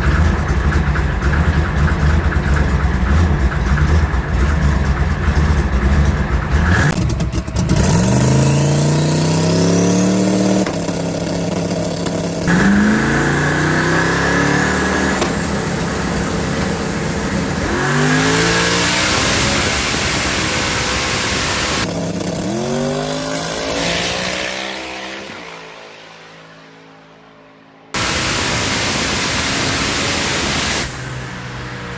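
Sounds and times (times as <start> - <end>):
car engine accelerating hard: 0.0 - 27.1, 27.9 - 31.9.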